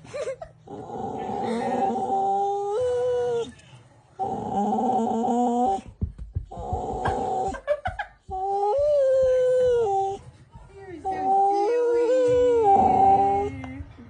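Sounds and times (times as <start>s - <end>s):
dog whining and howling: 0.7s - 3.5s, 4.2s - 5.8s, 8.3s - 10.2s, 11.1s - 13.8s.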